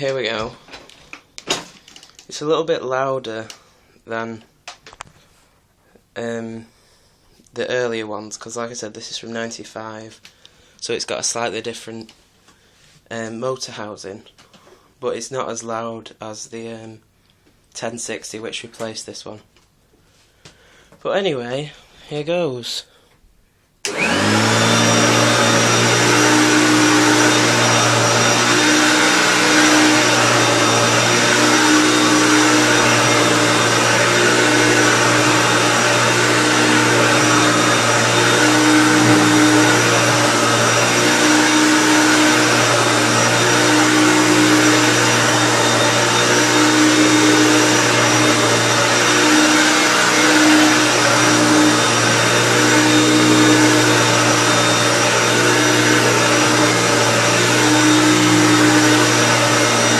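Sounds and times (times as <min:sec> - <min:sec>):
upright vacuum cleaner running: 0:23.8 - 0:59.9.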